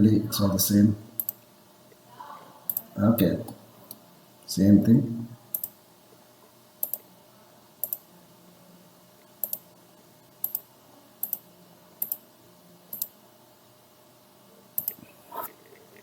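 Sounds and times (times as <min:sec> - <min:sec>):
computer mouse buttons clicking: 0:05.5 - 0:05.7, 0:06.8 - 0:07.0, 0:07.8 - 0:08.0, 0:09.4 - 0:09.6, 0:10.4 - 0:10.6, 0:11.2 - 0:11.4, 0:12.0 - 0:12.2, 0:12.9 - 0:13.1, 0:14.8 - 0:15.0.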